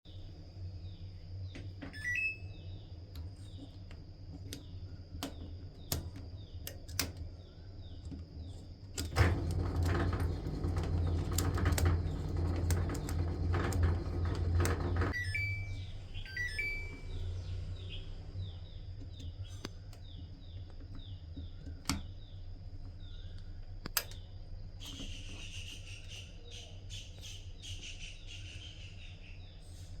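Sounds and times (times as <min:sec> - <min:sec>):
steady low hum: 0:00.1 - 0:27.6
whirring with rapid clicking: 0:08.9 - 0:15.2.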